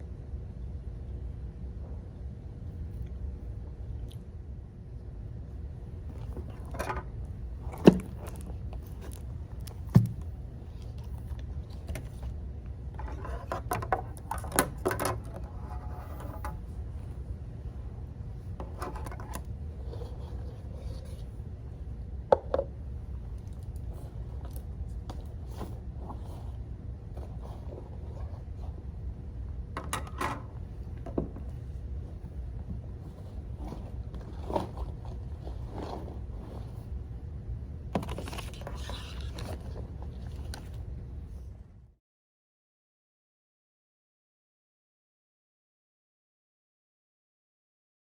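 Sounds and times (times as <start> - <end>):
low room rumble: 0.0 - 42.0
clicking and rustling objects: 6.1 - 12.4, 38.0 - 40.9.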